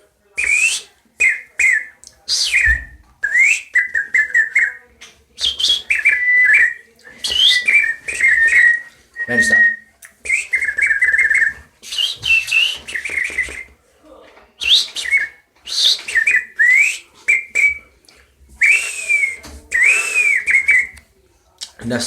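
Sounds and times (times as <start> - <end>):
man whistling bird calls: 14.6 - 17.8, 18.6 - 20.9.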